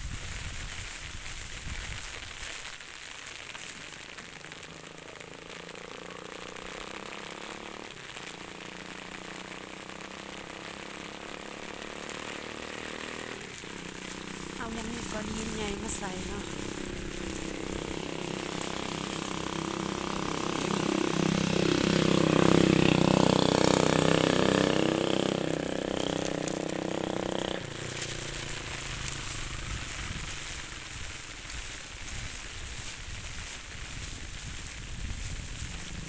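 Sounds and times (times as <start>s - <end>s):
rain hissing: 0.0s - 36.0s
small engine rising in pitch: 4.4s - 31.8s.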